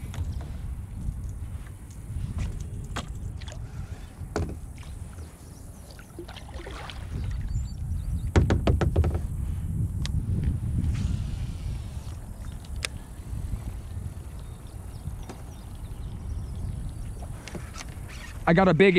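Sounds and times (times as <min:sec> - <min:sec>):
gear knocking against kayak hull: 0:08.2 - 0:09.4.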